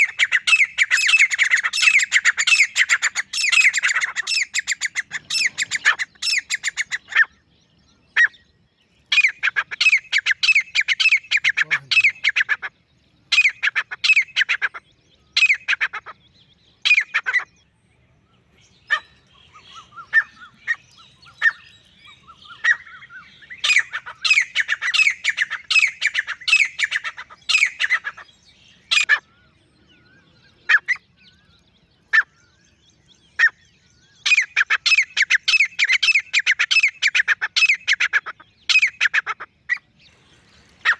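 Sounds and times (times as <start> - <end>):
francolin calling: 0.0 - 17.6, 18.2 - 32.7, 33.4 - 40.9.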